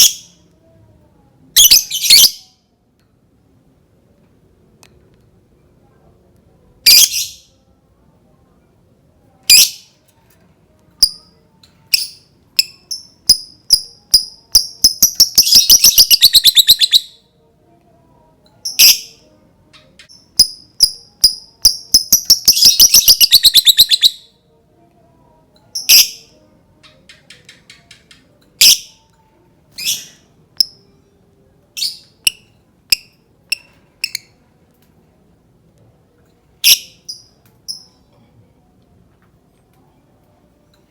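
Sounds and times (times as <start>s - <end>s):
lovebird chirping and chattering: 0.0s - 0.3s, 1.6s - 2.5s, 11.9s - 17.2s, 18.6s - 19.2s, 19.8s - 24.2s, 25.7s - 26.3s, 27.0s - 29.0s, 31.8s - 34.4s, 36.6s - 38.0s.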